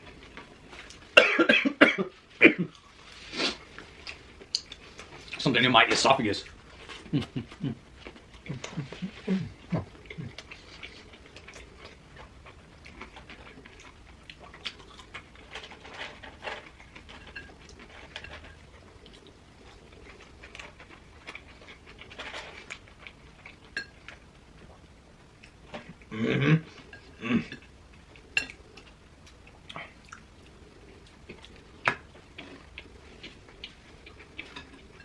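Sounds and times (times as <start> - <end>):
chewing with wet clicks: 4.0 - 5.4, 9.6 - 15.5, 27.9 - 35.0
low grunting throat noises: 8.5 - 10.4, 26.1 - 27.6.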